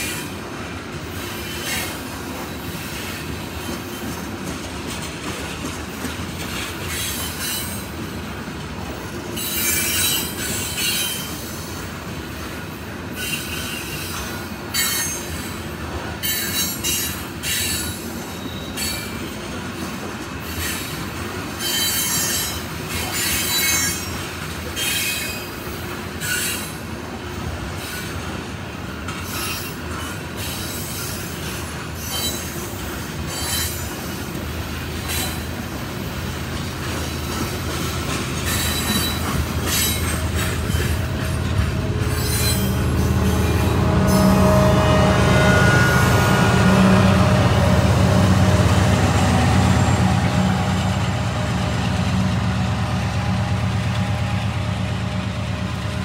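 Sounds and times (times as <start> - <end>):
wheels clattering on rails: 0.0 - 44.2
steel wheels squealing: 6.5 - 8.0, 9.3 - 11.9, 13.1 - 19.6, 20.4 - 26.8, 28.9 - 47.7.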